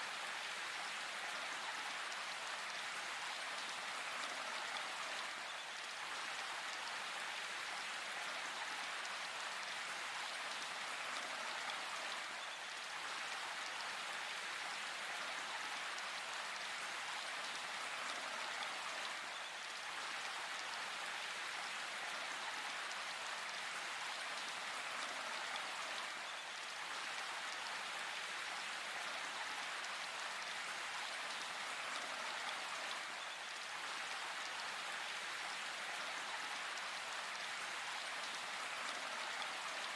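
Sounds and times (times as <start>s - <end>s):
steady rain in forest: 0.0s - 39.9s.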